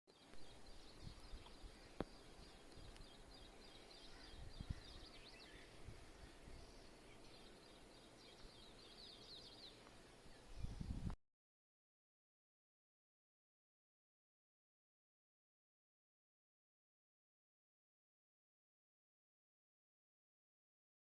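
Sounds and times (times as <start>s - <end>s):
small birds chirping: 0.1s - 11.2s.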